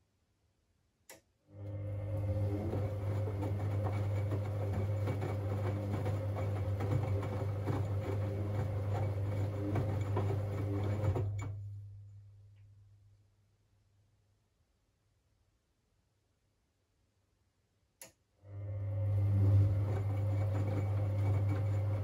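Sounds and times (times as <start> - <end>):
washing machine motor hum: 1.5 - 11.9, 18.4 - 22.0.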